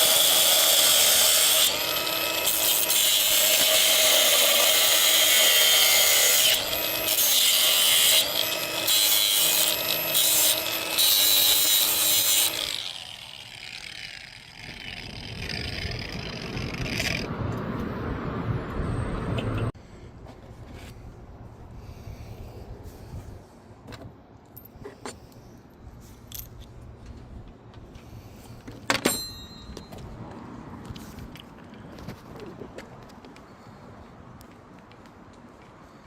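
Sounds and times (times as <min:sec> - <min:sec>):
power tool running: 0:00.0 - 0:17.2.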